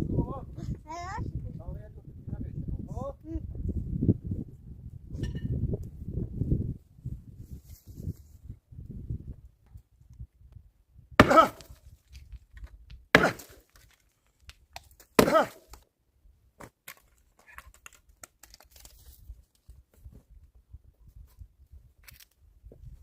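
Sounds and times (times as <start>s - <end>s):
axe chopping firewood: 11.2s - 15.9s.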